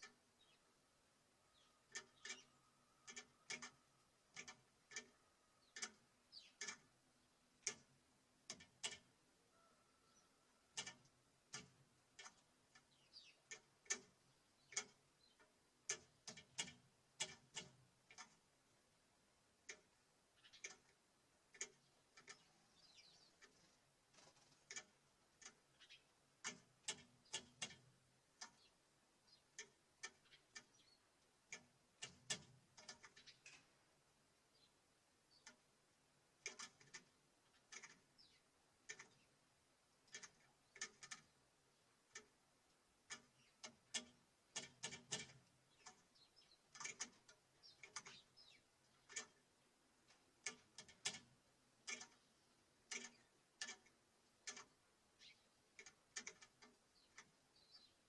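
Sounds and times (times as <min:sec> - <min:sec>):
faint bird chirps: 0:00.0 - 0:07.4, 0:09.5 - 0:10.9, 0:12.2 - 0:15.5, 0:19.7 - 0:20.9, 0:21.6 - 0:24.9, 0:25.5 - 0:26.2, 0:28.4 - 0:31.2, 0:33.0 - 0:33.8, 0:37.4 - 0:39.4, 0:45.6 - 0:49.3, 0:55.1 - 0:55.6, 0:56.8 - 0:58.0
birds pecking on wooden feeder: 0:01.5 - 0:58.0.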